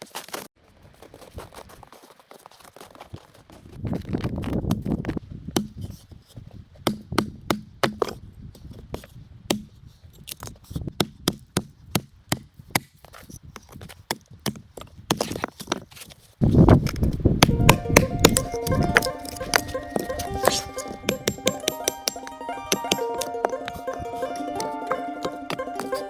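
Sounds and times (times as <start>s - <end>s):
blade chopping wood: 16.4s - 26.0s.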